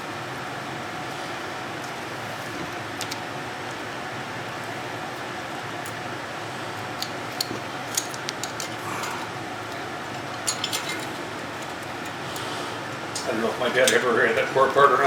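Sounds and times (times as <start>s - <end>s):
steady background noise: 0.0s - 15.0s
metal tools clinking: 7.0s - 12.5s, 13.8s - 14.1s.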